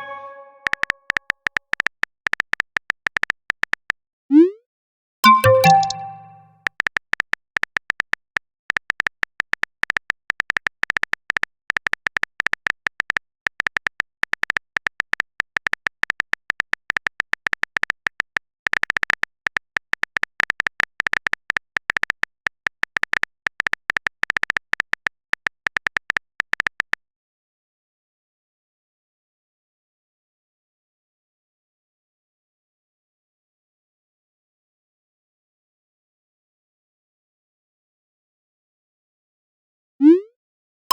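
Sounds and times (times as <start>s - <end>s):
notification chime: 0.0s - 0.6s, 5.2s - 6.5s
phone keyboard typing clicks: 5.2s - 8.1s.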